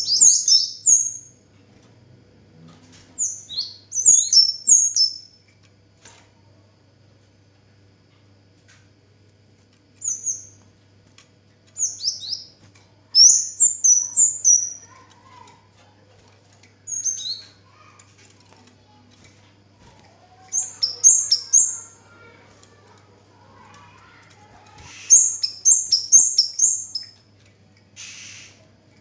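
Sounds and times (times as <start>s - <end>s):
songbird chirping: 0.0s - 1.4s, 3.2s - 5.4s, 11.7s - 15.6s, 20.0s - 27.3s
faint low hum: 0.0s - 29.0s.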